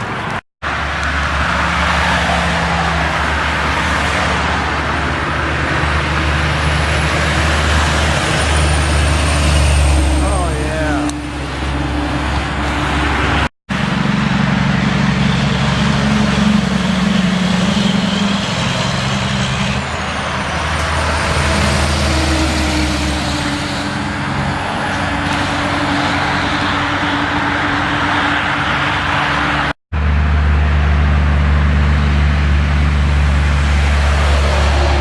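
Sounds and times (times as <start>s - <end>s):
road and traffic noise: 0.0s - 35.0s
truck diesel engine running: 0.0s - 35.0s.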